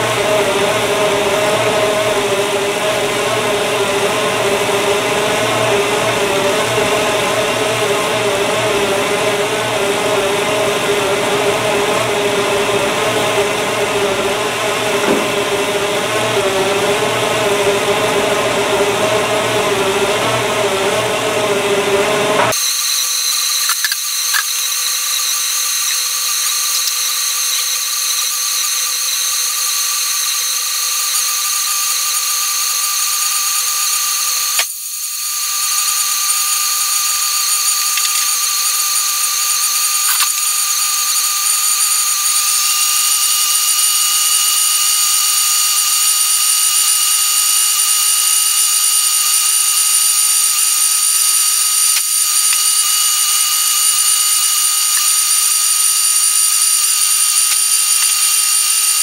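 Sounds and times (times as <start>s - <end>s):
steady high whine: 0.0s - 59.0s.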